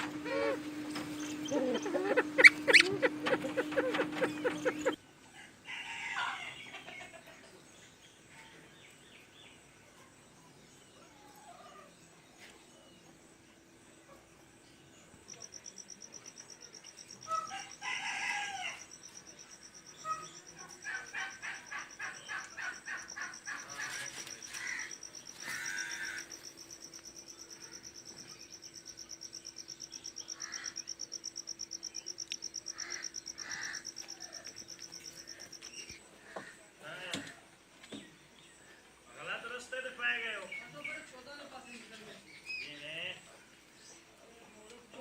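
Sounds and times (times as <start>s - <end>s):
fowl crowing and calling: 0.0s - 5.0s, 17.3s - 18.9s, 20.0s - 26.5s, 30.3s - 30.9s, 32.6s - 35.5s.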